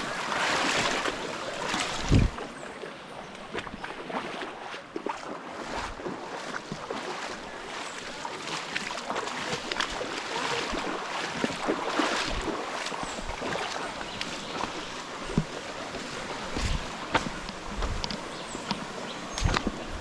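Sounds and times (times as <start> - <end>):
stream water rushing: 0.0 - 20.0
footsteps and knocks on rocks: 5.8 - 20.0.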